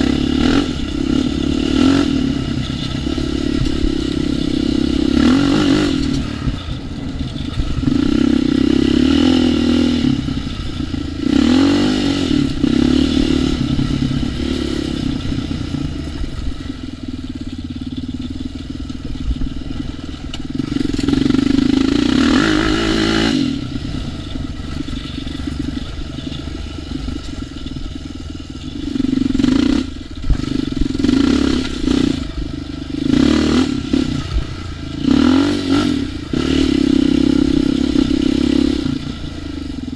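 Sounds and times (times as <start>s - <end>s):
atv engine revving: 0.0s - 39.9s
machine clattering over rough ground: 0.4s - 9.8s, 24.0s - 32.5s.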